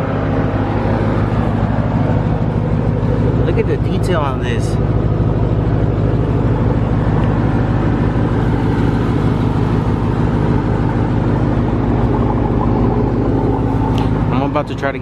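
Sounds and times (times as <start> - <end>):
car engine idling with low hum: 0.0 - 15.0.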